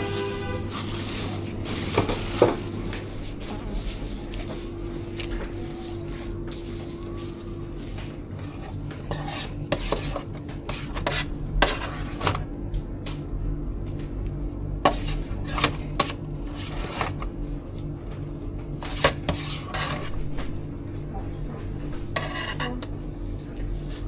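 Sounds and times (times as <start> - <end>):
steady low hum: 0.0 - 24.0
utensils scraping and clinking dishes: 8.4 - 12.4, 14.8 - 17.3, 18.8 - 20.2, 21.8 - 23.0.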